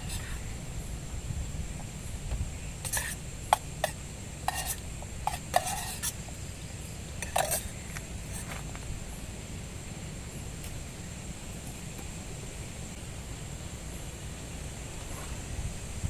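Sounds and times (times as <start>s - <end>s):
utensil scraping cookware: 2.8s - 3.2s, 3.8s - 6.2s, 7.2s - 7.8s.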